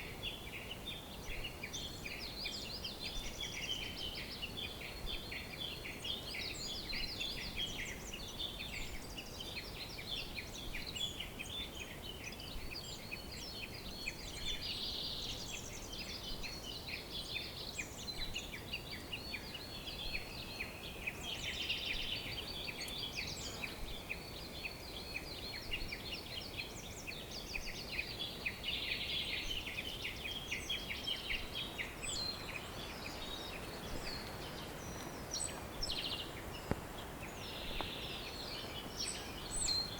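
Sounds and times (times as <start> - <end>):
faint steady hiss: 0.0 - 39.9
many birds chirping and trilling: 0.0 - 39.9.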